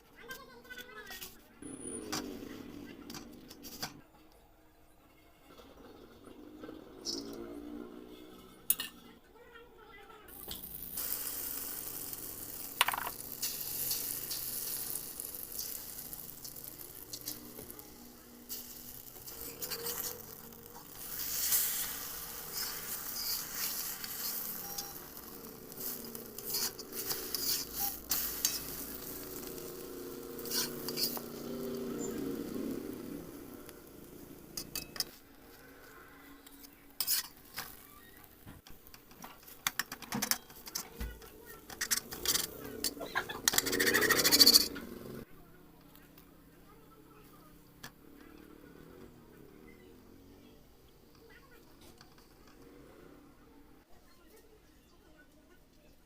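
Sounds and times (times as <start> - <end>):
food sizzling in a pan: 6.3 - 9.0, 10.3 - 45.3, 45.9 - 53.8
spatula scraping a pan: 10.4 - 45.2.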